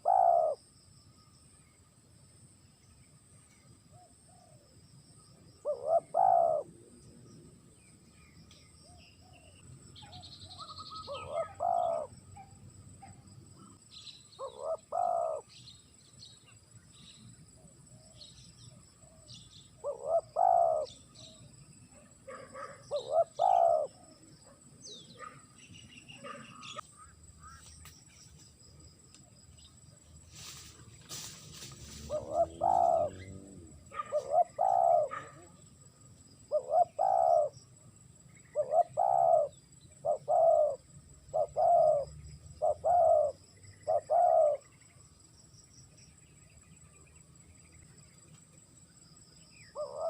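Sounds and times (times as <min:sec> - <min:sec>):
dove cooing: 0:00.0 - 0:00.6, 0:05.6 - 0:06.9, 0:09.2 - 0:12.5, 0:14.4 - 0:15.6, 0:19.0 - 0:21.4, 0:22.3 - 0:24.1, 0:32.0 - 0:35.6, 0:36.5 - 0:37.6, 0:38.5 - 0:44.7, 0:49.7 - 0:50.0
small birds chirping: 0:00.0 - 0:50.0.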